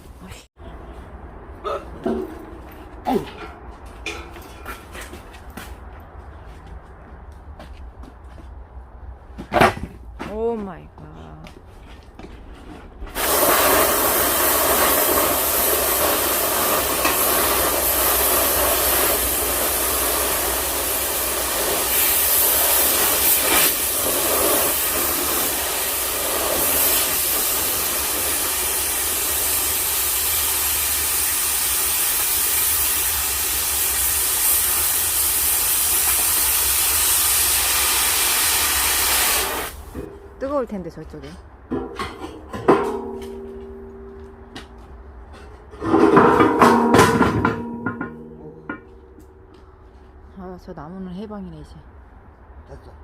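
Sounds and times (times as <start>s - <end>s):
cutting torch hissing: 13.2s - 39.9s.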